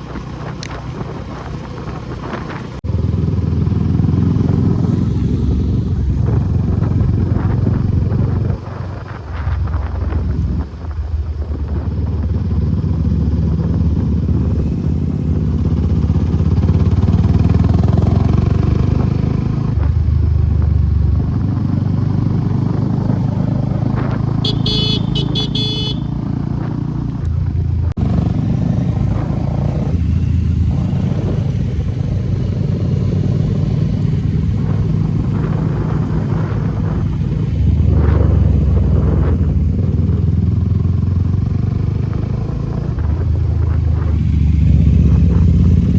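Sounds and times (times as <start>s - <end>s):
motorcycle engine running: 0.0s - 45.9s
horn beeping: 24.4s - 26.3s.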